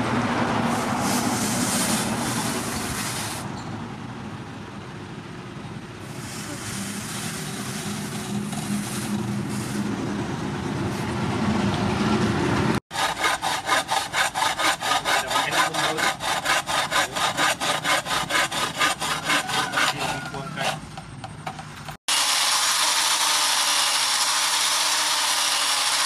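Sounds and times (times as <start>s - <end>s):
hacksaw cutting wood: 12.9s - 26.0s.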